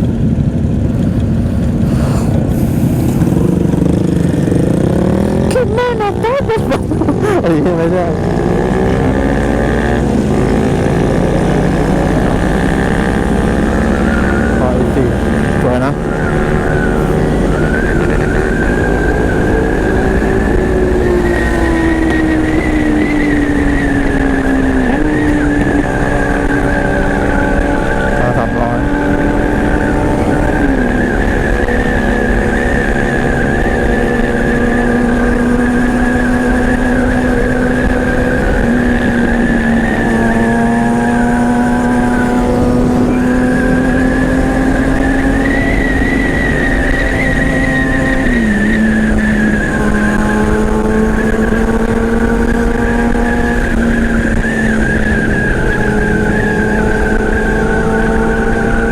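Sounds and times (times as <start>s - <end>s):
motorcycle engine running: 0.0s - 55.2s.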